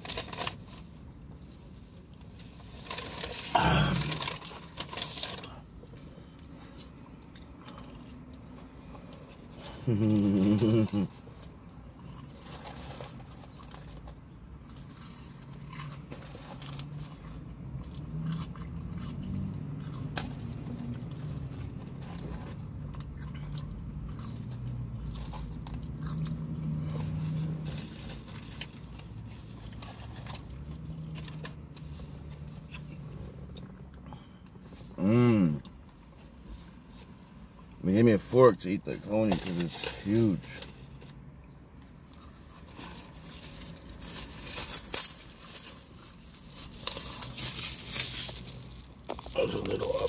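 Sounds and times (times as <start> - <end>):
person chewing: 2.0 - 34.4, 46.7 - 50.0.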